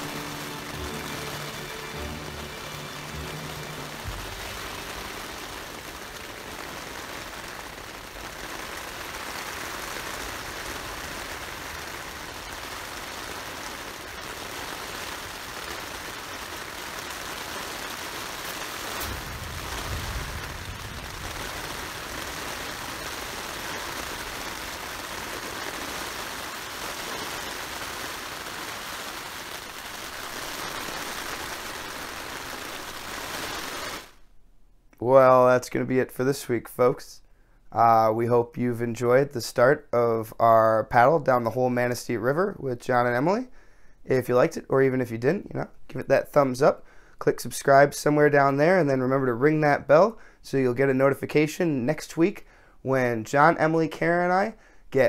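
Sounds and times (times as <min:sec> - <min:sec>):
rain drumming on tent fabric: 0:00.0 - 0:34.3.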